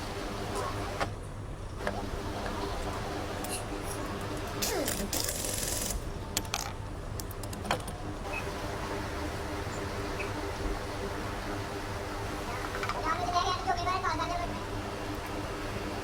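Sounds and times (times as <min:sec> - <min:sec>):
steady low hum: 0:00.0 - 0:16.0
small engine parts clicking: 0:04.6 - 0:08.0.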